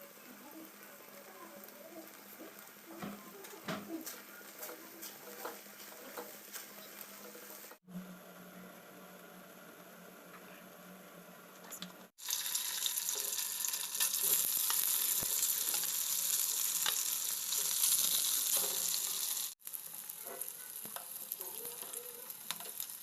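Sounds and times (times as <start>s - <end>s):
food sizzling in hot oil: 0.0s - 7.9s, 11.7s - 23.0s
small crackles and clicks: 16.7s - 23.0s.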